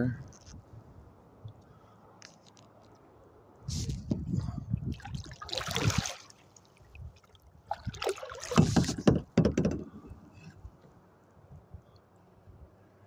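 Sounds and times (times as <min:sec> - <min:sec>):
kayak paddle splashing: 0:04.8 - 0:09.4.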